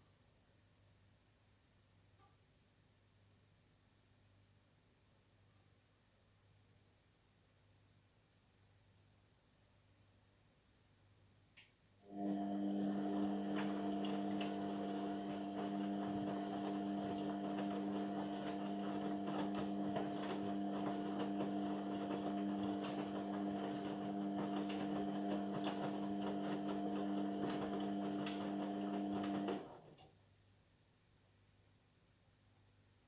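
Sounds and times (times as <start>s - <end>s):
washing machine motor hum: 12.0s - 30.0s.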